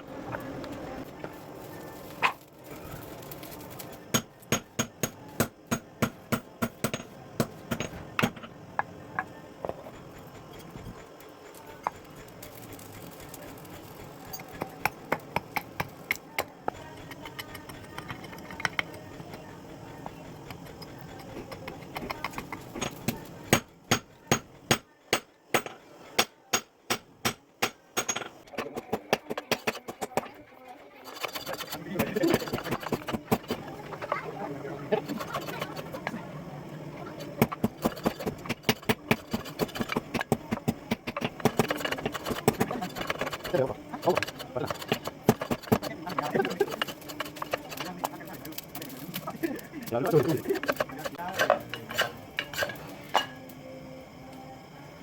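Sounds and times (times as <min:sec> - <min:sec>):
hammer striking steel: 0:23.5 - 0:28.3.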